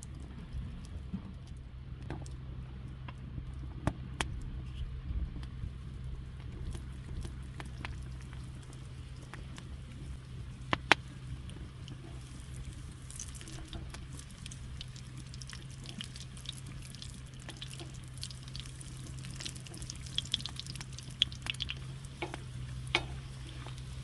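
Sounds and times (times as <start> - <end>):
oil popping and crackling: 0.0 - 4.5, 5.3 - 24.0
pastry sizzling in hot oil: 7.4 - 24.0.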